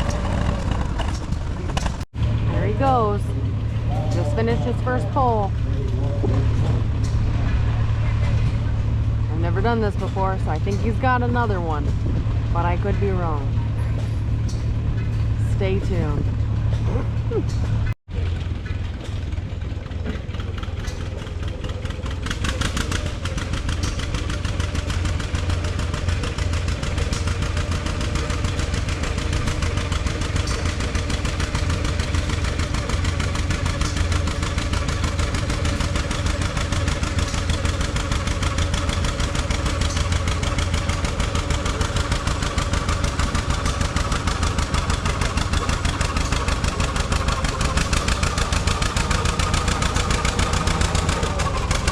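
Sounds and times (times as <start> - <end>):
tractor engine running: 0.0 - 51.9.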